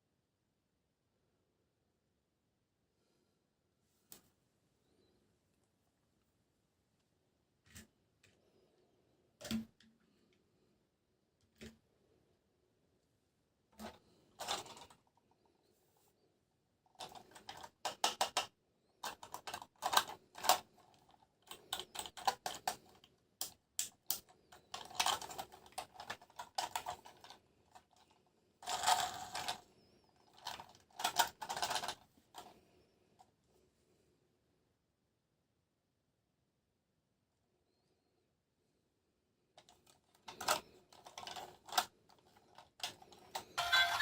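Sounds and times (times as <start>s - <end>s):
plastic toys and packaging handled: 13.6s - 16.2s, 16.8s - 33.4s, 39.5s - 44.0s.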